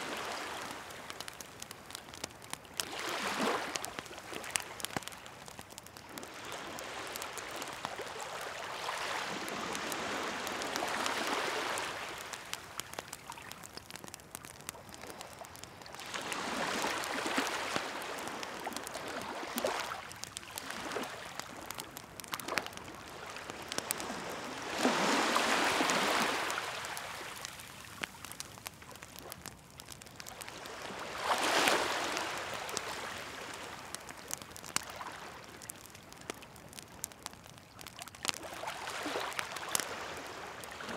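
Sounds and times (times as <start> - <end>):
wood bonfire crackling: 0.0 - 40.9
sea waves washing in: 23.0 - 27.6, 30.5 - 33.8.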